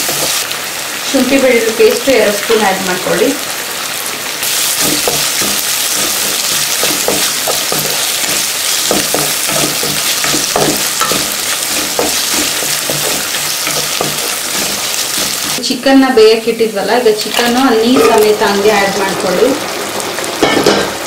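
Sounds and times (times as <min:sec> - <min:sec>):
food sizzling in hot oil: 0:00.0 - 0:21.0
wooden spatula scraping a pan: 0:04.6 - 0:15.6.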